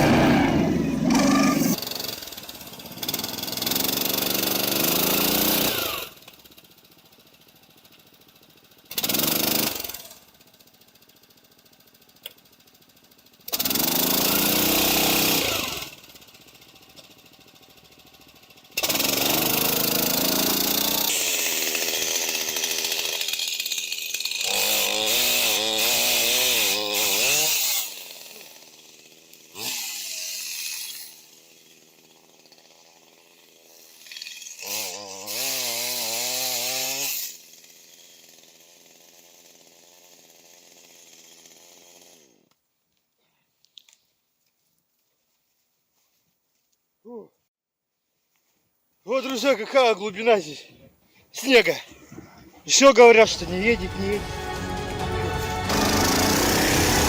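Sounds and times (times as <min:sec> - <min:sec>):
small engine revving: 0:00.0 - 0:06.5, 0:08.9 - 0:10.3, 0:13.4 - 0:42.5, 0:53.5 - 0:57.0.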